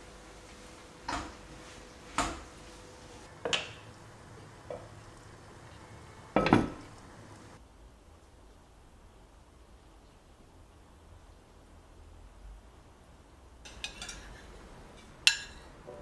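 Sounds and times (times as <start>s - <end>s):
dishes and utensils clinking: 3.3s - 7.6s, 13.7s - 16.0s.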